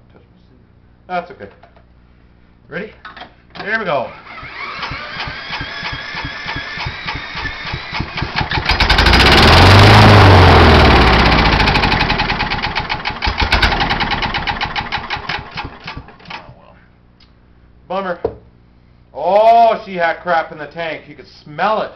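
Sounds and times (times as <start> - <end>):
electric drill whining: 4.1 - 9.5
mower engine running: 4.2 - 16.4.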